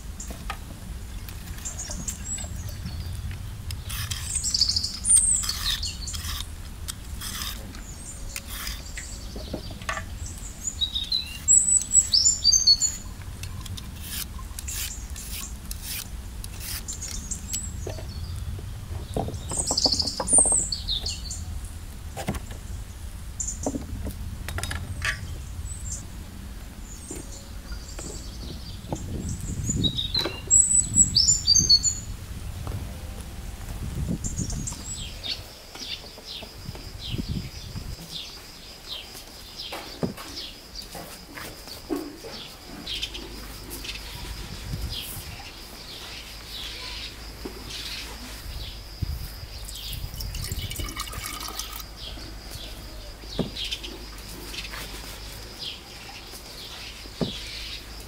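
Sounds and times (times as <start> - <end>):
small birds chirping: 0.0 - 32.8, 33.9 - 58.0
vegetable peeling clicks and scrapes: 3.2 - 8.9, 13.3 - 17.7.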